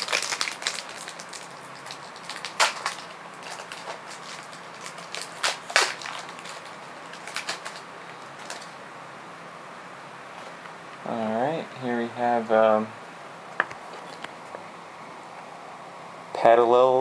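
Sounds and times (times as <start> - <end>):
cards rustling: 0.0 - 8.8
low room hum: 0.0 - 17.0.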